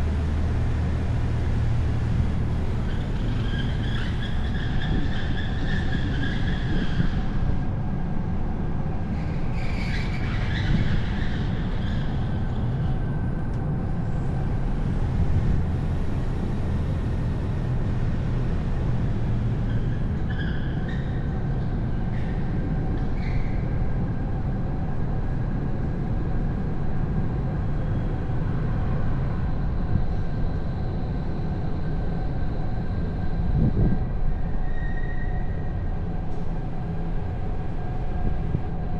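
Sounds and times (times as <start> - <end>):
road and wind rumble: 0.0 - 38.9
brief high squeals: 34.6 - 35.6.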